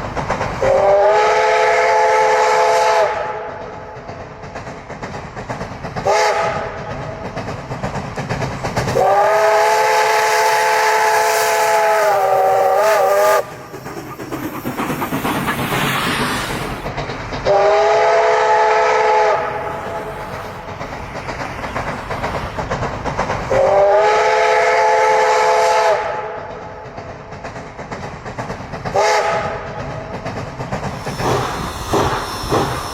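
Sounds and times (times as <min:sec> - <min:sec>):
rushing steam hiss: 0:00.0 - 0:26.2, 0:26.9 - 0:32.9
train running on rails: 0:00.0 - 0:32.9
steam locomotive chime whistle: 0:00.6 - 0:03.4, 0:09.0 - 0:13.5, 0:17.5 - 0:19.7, 0:23.6 - 0:26.2.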